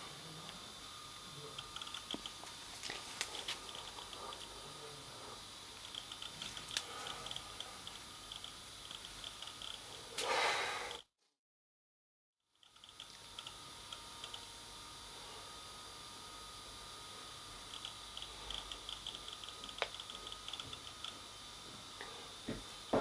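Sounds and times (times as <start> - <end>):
laptop clicking and ticking: 1.6 - 2.4, 5.8 - 9.9, 12.6 - 14.5, 17.7 - 21.2.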